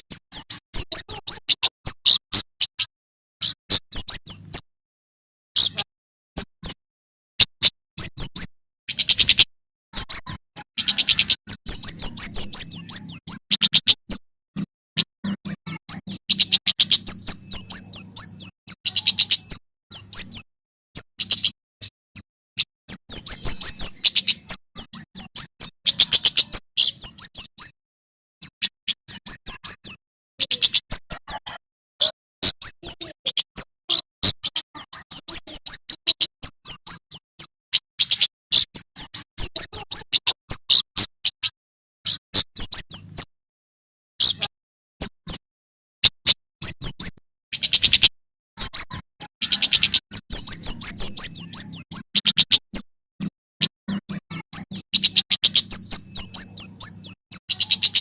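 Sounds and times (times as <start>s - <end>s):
bird chirping in fast runs: 0.0s - 4.7s, 5.6s - 6.8s, 7.4s - 27.8s, 28.4s - 41.5s, 42.1s - 43.4s, 44.2s - 45.4s, 46.0s - 58.0s.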